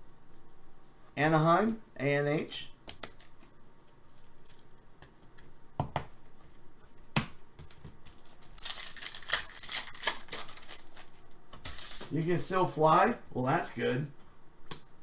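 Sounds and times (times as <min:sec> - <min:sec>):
cards rustling and flicking: 0:02.8 - 0:05.5, 0:07.2 - 0:12.4.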